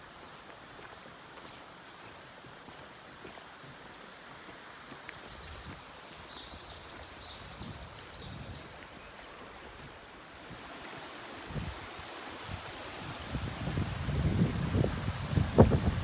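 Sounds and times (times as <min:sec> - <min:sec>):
cicada drone: 0:00.0 - 0:16.0
wind rumble: 0:11.5 - 0:16.0.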